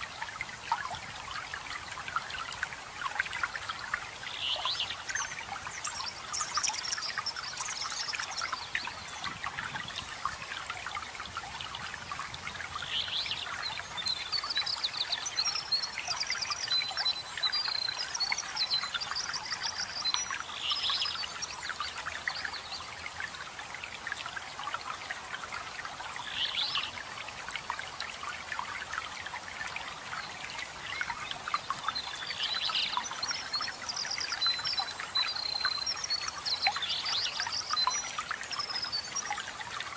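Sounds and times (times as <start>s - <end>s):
songbirds chirping: 25.2s - 39.9s.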